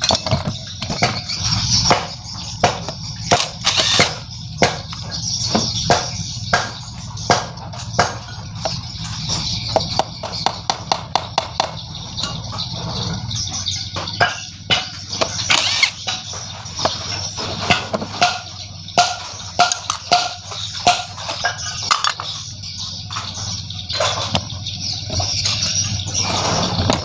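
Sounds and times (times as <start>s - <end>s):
tools clinking on metal: 14.0s - 26.2s.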